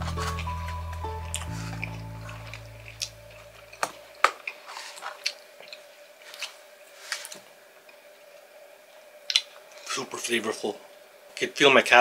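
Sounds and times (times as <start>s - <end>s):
background music chord: 0.0s - 3.9s
person chewing: 1.2s - 7.4s.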